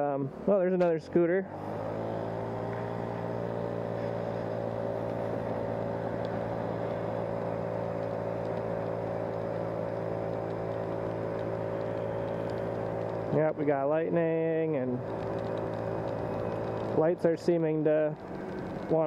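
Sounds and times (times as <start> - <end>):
motor scooter engine droning: 0.0 - 19.0.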